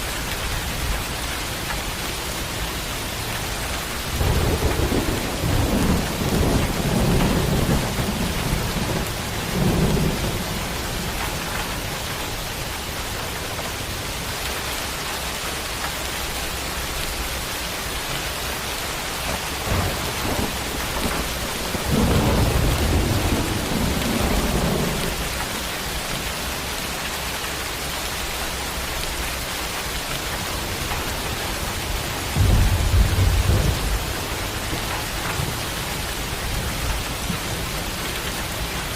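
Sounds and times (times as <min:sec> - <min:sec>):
heavy rain: 0:00.0 - 0:38.9
thunder rumbling: 0:03.6 - 0:12.6, 0:19.0 - 0:26.7, 0:29.8 - 0:38.9.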